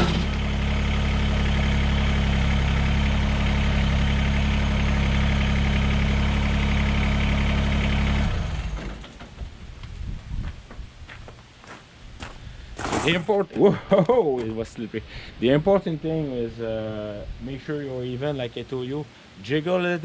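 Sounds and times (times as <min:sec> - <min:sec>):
tractor diesel engine idling: 0:00.0 - 0:09.6.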